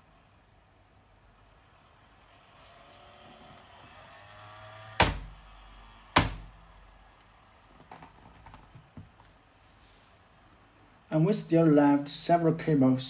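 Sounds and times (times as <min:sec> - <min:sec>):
loud knocks: 0:05.0 - 0:05.6, 0:06.2 - 0:06.7.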